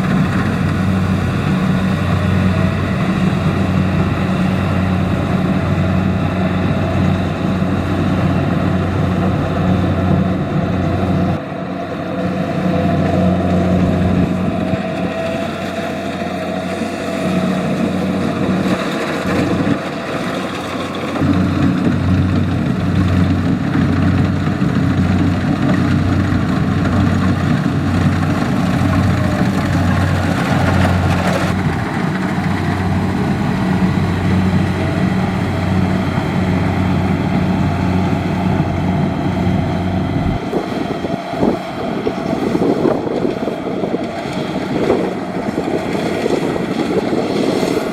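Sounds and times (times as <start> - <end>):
combine harvester droning: 0.0 - 47.9.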